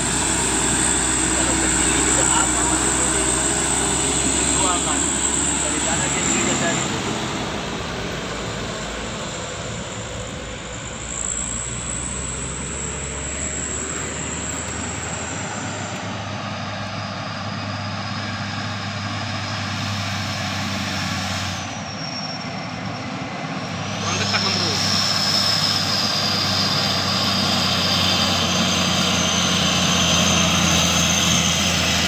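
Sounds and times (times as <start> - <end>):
diesel truck engine passing: 0.0 - 32.0.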